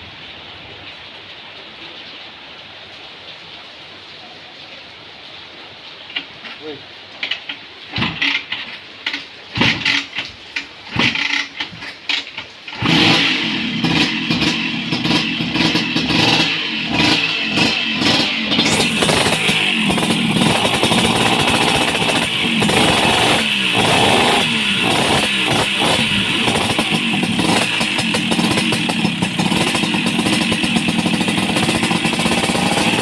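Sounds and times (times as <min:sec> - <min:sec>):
scooter engine sputtering and revving: 0:07.9 - 0:33.0.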